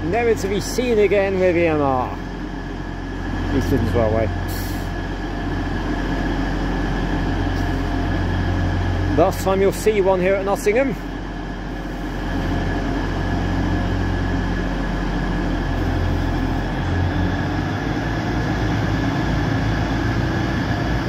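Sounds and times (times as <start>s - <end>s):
diesel train engines droning: 0.0s - 21.0s.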